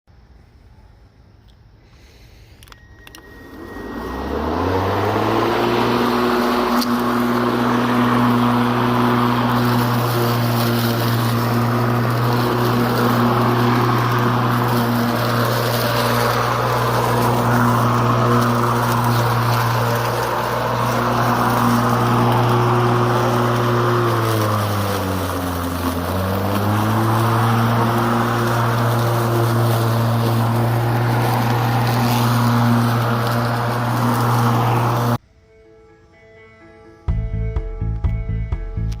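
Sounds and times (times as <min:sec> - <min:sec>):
mower clicks: 0:02.5 - 0:35.2
electric mower motor running: 0:03.0 - 0:35.2.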